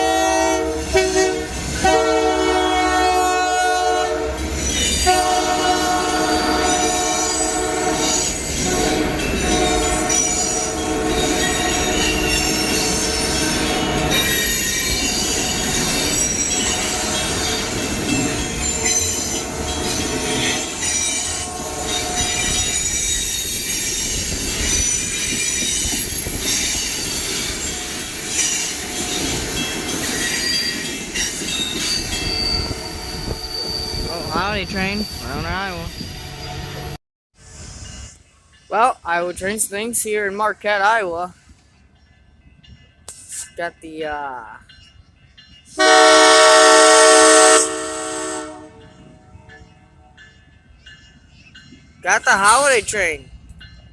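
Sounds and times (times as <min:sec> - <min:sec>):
train horn chord: 0:00.0 - 0:04.3, 0:05.0 - 0:12.2, 0:21.3 - 0:22.5, 0:45.8 - 0:49.4
train rumbling past: 0:00.0 - 0:53.9.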